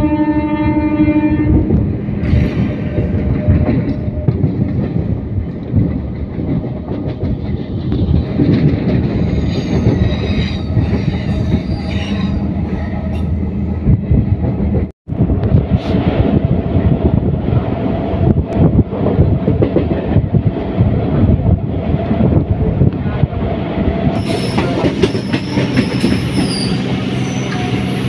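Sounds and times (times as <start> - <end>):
train wheels rumbling on rails: 1.4 - 28.0
faint high wheel squeal: 24.2 - 28.0.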